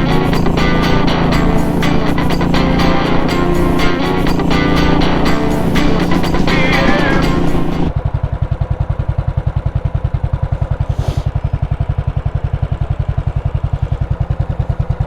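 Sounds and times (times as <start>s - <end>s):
motorcycle engine idling: 0.0s - 15.0s
brief hiss: 10.9s - 11.4s.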